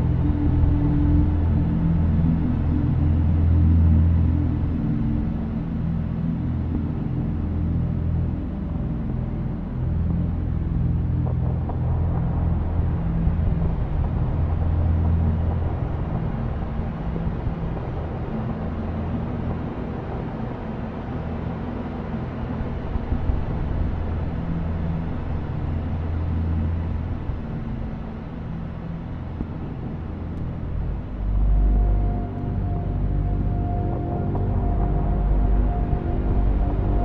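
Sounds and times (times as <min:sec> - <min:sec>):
grainy rumbling noise wash: 0:00.0 - 0:37.0
synthesizer drone: 0:09.6 - 0:37.0.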